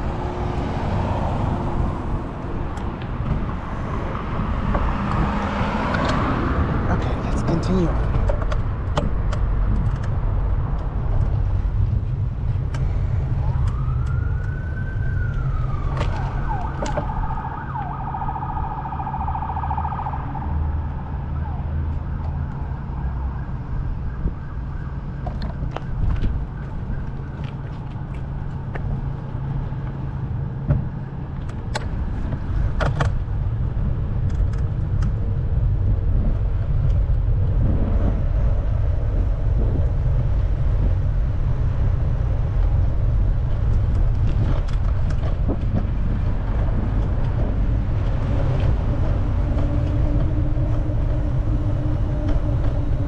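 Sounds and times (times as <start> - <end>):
emergency vehicle siren: 0.0 - 6.8, 12.3 - 30.3, 46.0 - 53.0
low rumble of traffic: 0.0 - 53.0.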